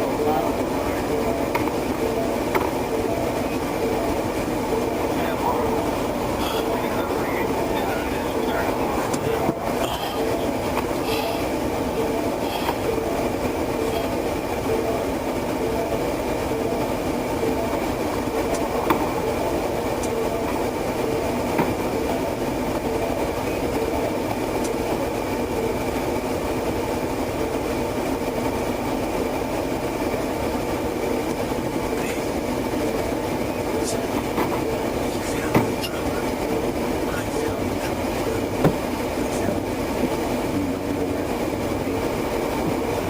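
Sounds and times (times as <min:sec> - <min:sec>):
car cabin rumble and hum: 0:00.0 - 0:26.6, 0:30.0 - 0:43.0
faint steady tone: 0:00.0 - 0:28.1.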